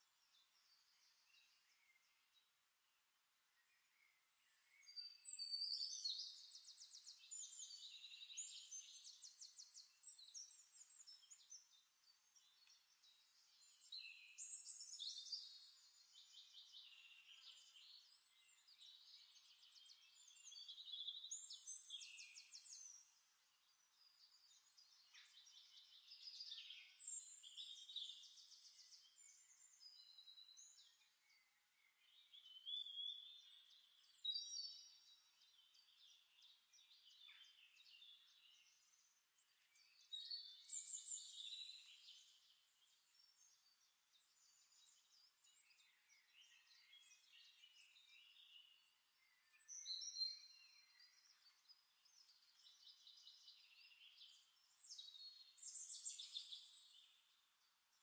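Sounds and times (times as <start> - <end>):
songbirds trilling and chirping: 0.0 - 58.0.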